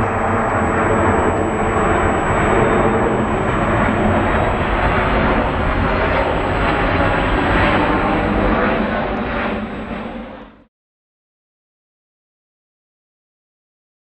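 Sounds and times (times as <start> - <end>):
jet airliner engine roar: 0.0 - 10.7.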